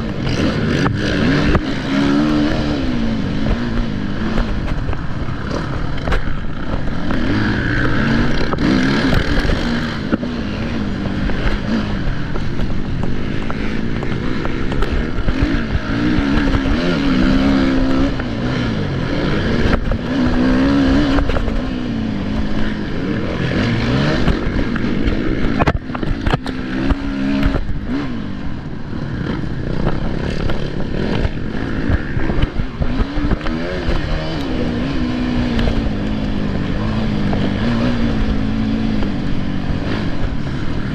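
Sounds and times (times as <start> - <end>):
motocross bike engines revving: 0.0 - 40.9.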